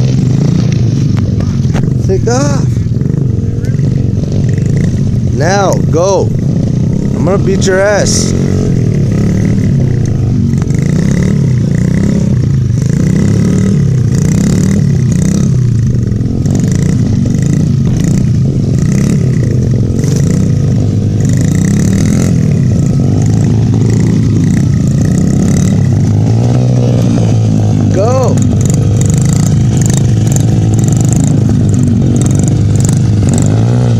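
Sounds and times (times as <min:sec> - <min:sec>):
dirt bike engine revving: 0:00.0 - 0:33.9.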